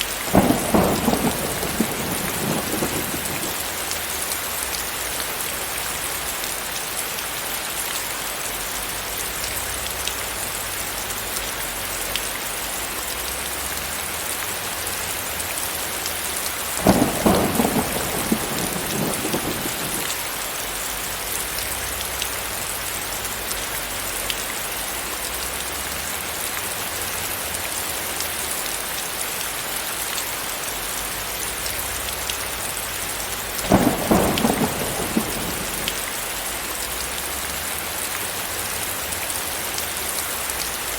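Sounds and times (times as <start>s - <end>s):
steady rain hissing: 0.0s - 40.9s
thunder rolls: 0.3s - 3.8s, 16.8s - 20.3s, 33.6s - 36.2s.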